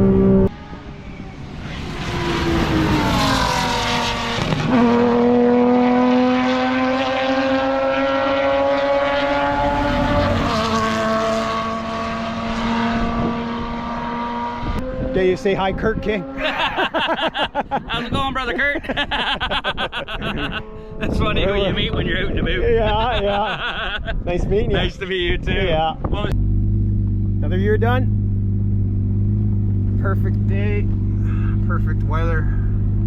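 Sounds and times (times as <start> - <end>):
sports car engine at high revs: 0.0 - 17.2, 26.3 - 33.0.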